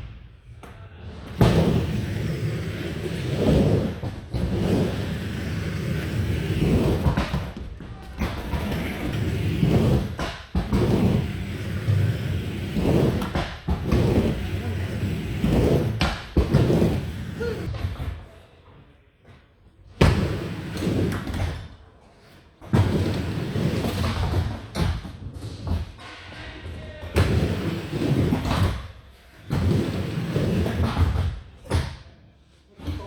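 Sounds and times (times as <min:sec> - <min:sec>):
skateboard wheels rolling: 0:01.1 - 0:18.2, 0:20.0 - 0:21.7, 0:22.7 - 0:26.0, 0:27.1 - 0:31.3
skateboard slaps and thuds: 0:01.3 - 0:18.2, 0:22.6 - 0:26.1.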